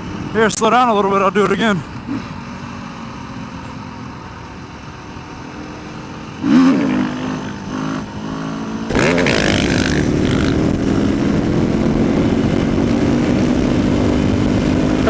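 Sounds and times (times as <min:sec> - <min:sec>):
motorcycle engine revving: 0:06.3 - 0:15.0.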